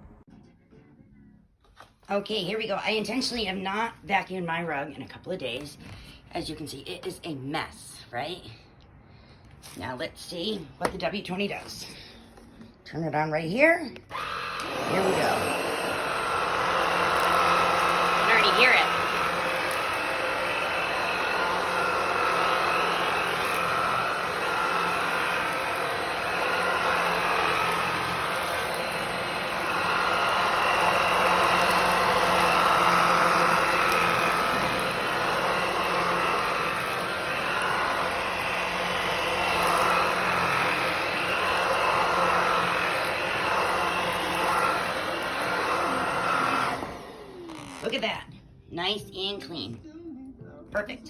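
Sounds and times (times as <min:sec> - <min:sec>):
vacuum cleaner motor whine: 0:14.1 - 0:48.1.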